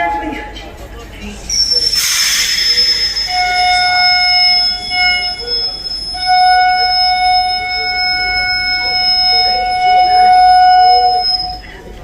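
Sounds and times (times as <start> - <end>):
train hissing: 0.0 - 12.0
train squealing tones: 0.0 - 12.0.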